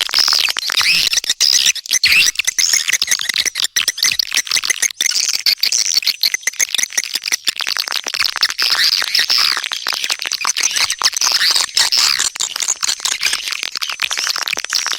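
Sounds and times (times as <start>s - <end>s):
swiftlet chirps and twitters: 0.7s - 6.7s.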